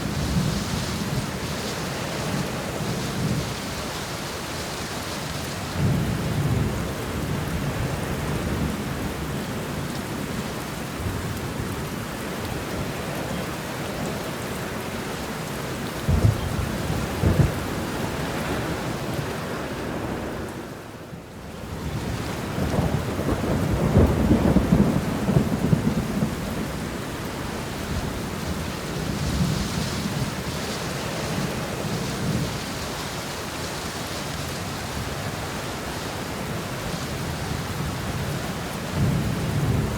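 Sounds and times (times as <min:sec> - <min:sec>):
steady rain shower: 0:00.0 - 0:39.9
thunder rumbling: 0:16.0 - 0:20.4, 0:21.9 - 0:33.0.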